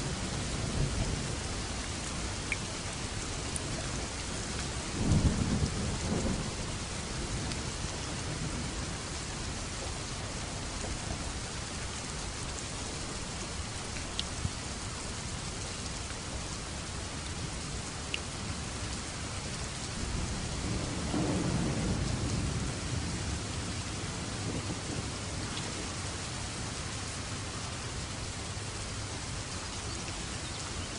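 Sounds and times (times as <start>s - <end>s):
steady rain falling: 0.0s - 30.9s
light drip ticks: 1.8s - 4.8s, 7.4s - 7.7s, 9.5s - 16.6s, 17.2s - 20.0s, 25.5s - 25.8s
distant thunder rolling: 20.0s - 25.8s.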